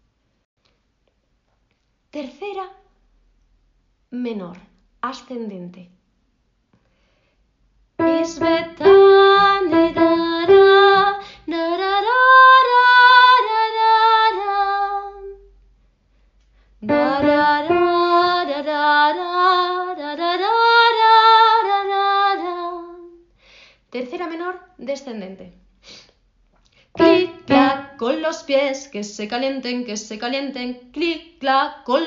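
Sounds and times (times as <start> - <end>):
woman singing: 8.0 - 15.4, 16.8 - 23.2, 27.0 - 32.0.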